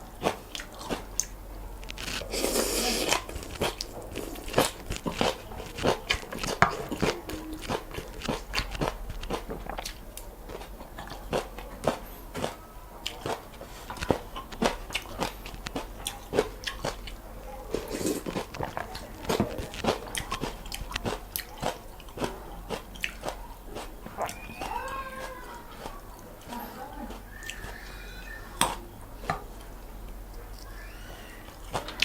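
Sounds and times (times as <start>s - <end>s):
crunchy chewing of noodles: 0.0s - 32.0s
cat meowing: 24.2s - 26.0s.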